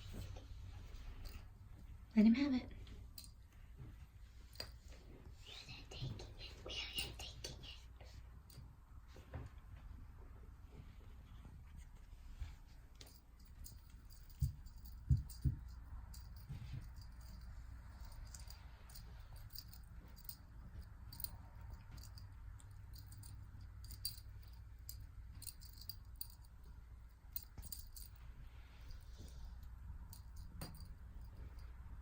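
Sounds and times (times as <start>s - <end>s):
toy clicking and rattling: 13.0s - 28.2s.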